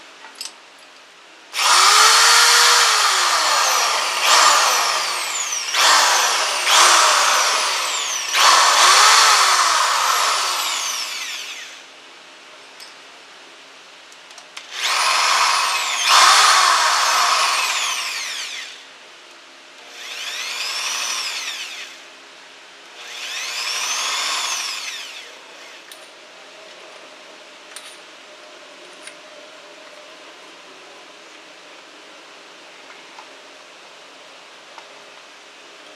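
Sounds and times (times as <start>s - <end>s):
drill motor whining: 1.6s - 11.9s, 14.7s - 18.8s, 19.9s - 22.0s, 23.0s - 25.9s.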